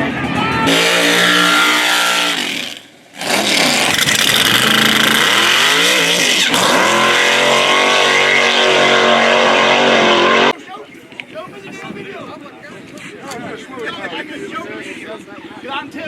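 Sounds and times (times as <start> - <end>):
racing car engine at full throttle: 0.0 - 10.6.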